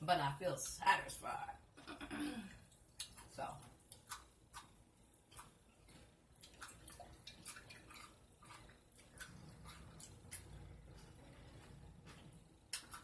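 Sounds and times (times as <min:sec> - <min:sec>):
low room hum: 0:00.0 - 0:13.0
mouth chewing clicks and smacks: 0:02.7 - 0:11.1, 0:12.1 - 0:13.0.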